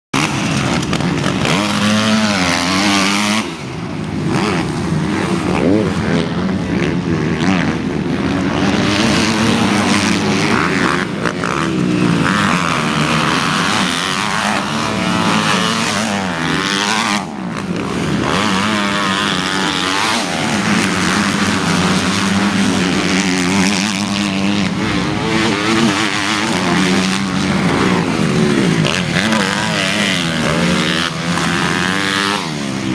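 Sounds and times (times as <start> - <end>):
motocross bikes revving: 0.2 - 32.9.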